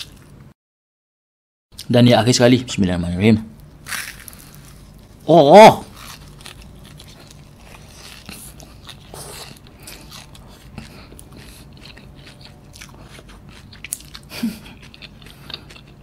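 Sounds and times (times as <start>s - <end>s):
crisp pastry crunching when chewed: 3.8s - 16.0s.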